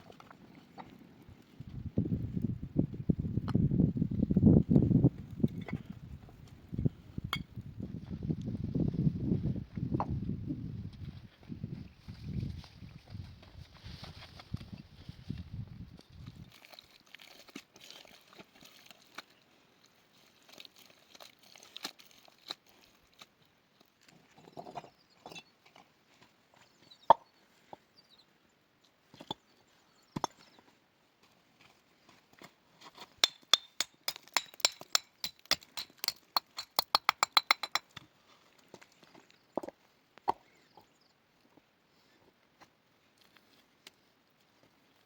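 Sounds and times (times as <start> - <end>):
sharp knocks and clicks on wood: 33.2 - 38.0.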